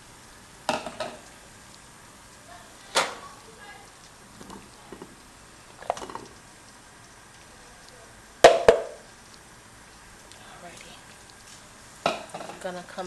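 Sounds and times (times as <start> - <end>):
light taps on kitchenware: 8.5 - 9.0
sharp knocks with ring: 8.5 - 9.0.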